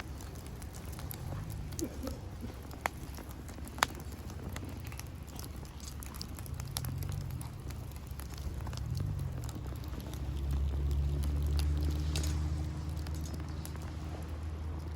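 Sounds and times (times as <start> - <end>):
bonfire crackling: 0.0 - 14.9
low steady rumble: 0.0 - 14.9.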